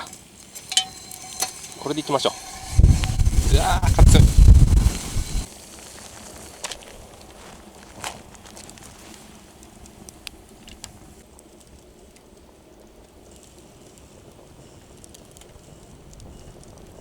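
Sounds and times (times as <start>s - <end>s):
campfire crackling: 0.0s - 17.0s
low rush: 1.7s - 5.5s.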